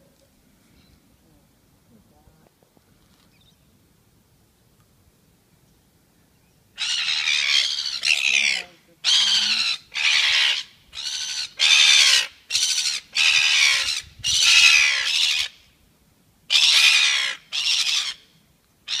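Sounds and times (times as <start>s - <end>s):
bird squawking: 6.8s - 15.6s, 16.5s - 18.2s.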